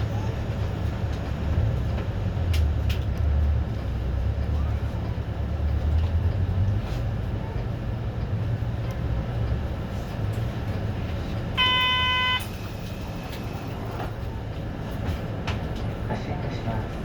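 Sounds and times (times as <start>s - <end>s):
bus engine idling: 0.0s - 17.0s
electronic warning beep: 11.6s - 12.5s.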